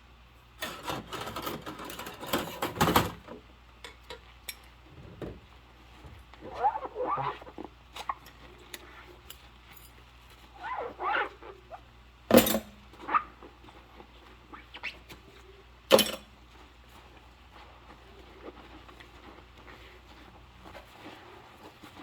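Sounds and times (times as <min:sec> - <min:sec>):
rubber gloves squeaking on dishes: 0:06.0 - 0:09.2, 0:10.4 - 0:11.9, 0:12.9 - 0:15.8
dishes clinking: 0:15.9 - 0:16.3.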